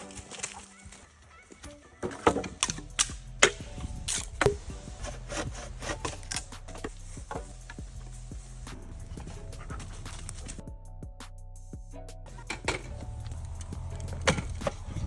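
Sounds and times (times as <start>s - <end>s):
wooden knocks and clatters: 12.4s - 15.0s.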